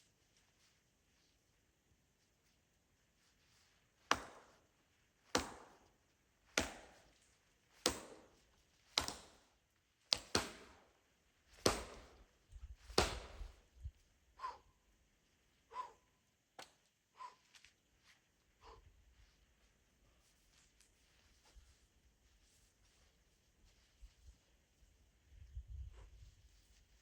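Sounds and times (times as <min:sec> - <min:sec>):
axe chopping wood: 0:04.1 - 0:04.6, 0:05.3 - 0:05.9, 0:06.5 - 0:07.1, 0:07.8 - 0:09.5, 0:10.1 - 0:10.8, 0:11.6 - 0:12.2, 0:12.8 - 0:13.5.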